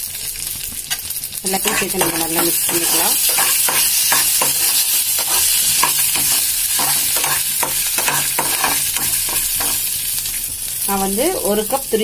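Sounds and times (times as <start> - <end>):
spices sizzling in hot oil: 0.0 - 12.0
spatula scraping pan: 1.5 - 10.0.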